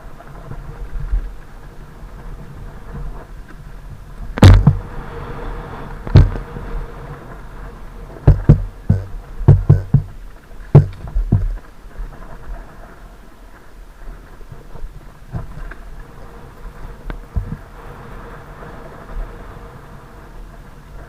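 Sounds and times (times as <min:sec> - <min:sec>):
low steady rumble: 0:00.0 - 0:21.0
dirt bike jolting over rough ground: 0:04.3 - 0:04.9, 0:06.0 - 0:06.5, 0:08.2 - 0:12.8.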